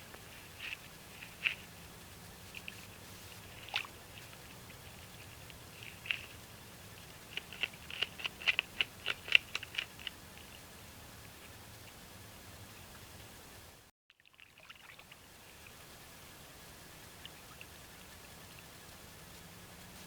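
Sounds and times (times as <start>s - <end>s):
beaver gnawing on a branch: 0.1s - 10.6s.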